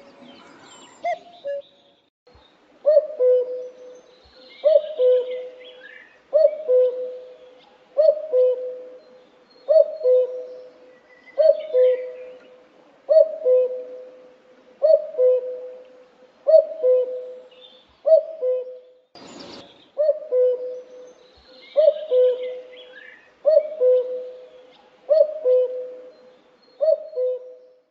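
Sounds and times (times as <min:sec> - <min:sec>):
small birds chirping: 0:16.5 - 0:27.9.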